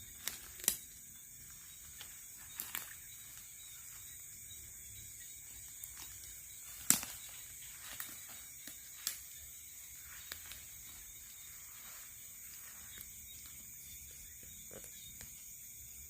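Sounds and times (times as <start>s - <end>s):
crickets shrilling: 0.0s - 16.0s.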